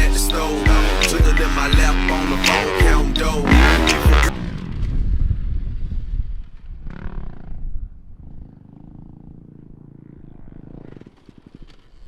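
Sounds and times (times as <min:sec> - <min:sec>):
dirt bike engine revving: 0:00.0 - 0:05.2.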